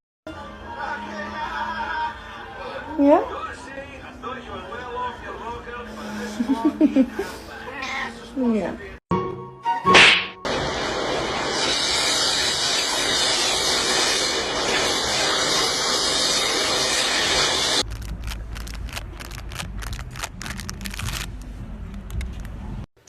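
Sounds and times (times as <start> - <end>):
loud hiss: 10.5 - 17.8
quick crackles and clicks: 17.4 - 22.6.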